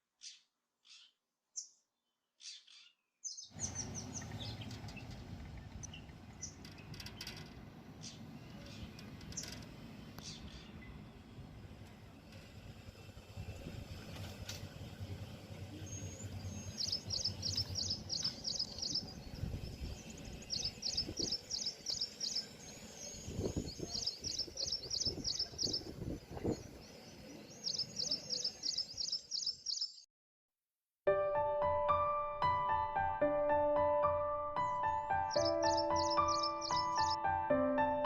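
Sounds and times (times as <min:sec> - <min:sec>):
low background rumble: 0:03.6 - 0:28.9
bird singing high repeated notes: 0:15.8 - 0:30.1, 0:34.9 - 0:37.2.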